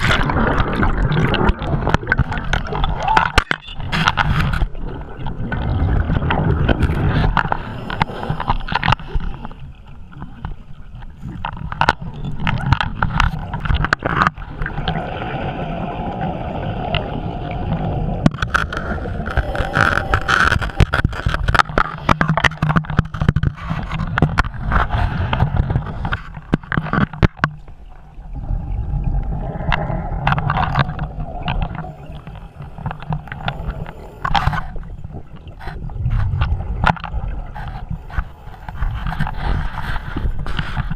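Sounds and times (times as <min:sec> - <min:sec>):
regulator bubbles gurgling underwater: 0:00.0 - 0:40.9
sharp clicks and knocks: 0:18.2 - 0:27.7.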